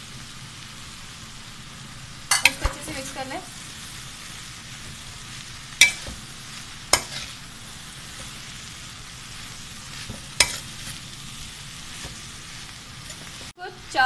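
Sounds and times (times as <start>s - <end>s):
food sizzling in oil: 0.0s - 14.0s
spatula striking pan: 2.3s - 3.0s, 5.7s - 7.4s, 10.0s - 11.0s.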